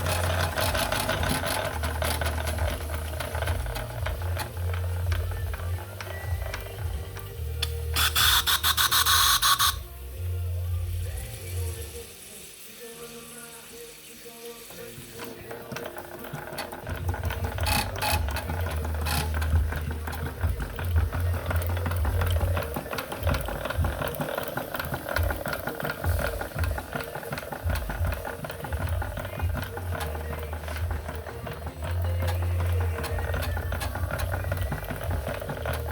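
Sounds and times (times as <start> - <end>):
steam engine mechanical clatter: 0.0 - 10.1, 10.8 - 35.9
steam hiss: 8.0 - 15.6.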